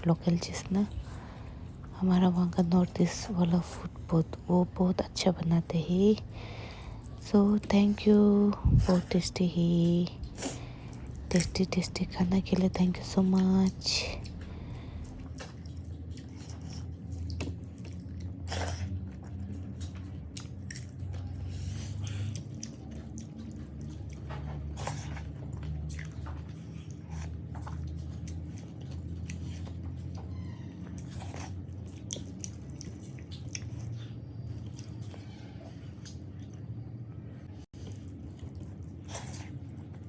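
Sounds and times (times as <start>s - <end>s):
steady low hum: 0.0s - 30.4s
chewing and wet mouth sounds: 0.0s - 40.0s.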